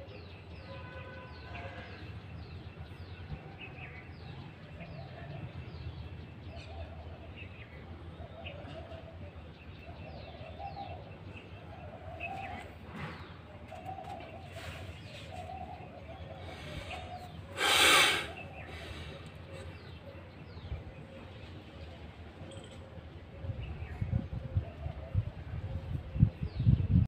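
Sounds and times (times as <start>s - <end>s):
bird cooing: 8.2s - 9.3s.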